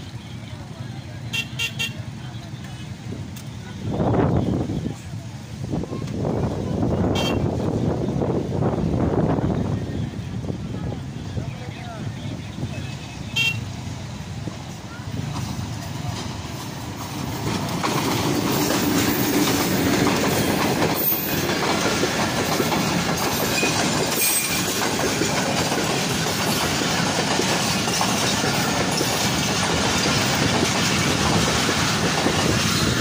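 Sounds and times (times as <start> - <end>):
diesel train passing: 0.0 - 33.0
train wheels on rails: 0.0 - 33.0.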